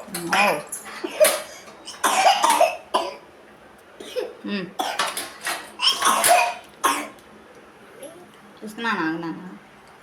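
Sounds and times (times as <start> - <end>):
child coughing: 0.4 - 3.2, 4.0 - 5.1, 5.8 - 7.2
child speaking: 7.9 - 8.4.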